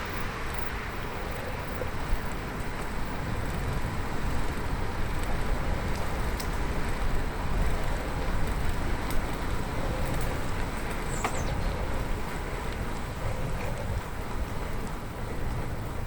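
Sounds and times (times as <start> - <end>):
bicycle road noise: 0.0 - 16.0
wind on microphone: 0.0 - 16.0
faint clicks: 4.5 - 15.7.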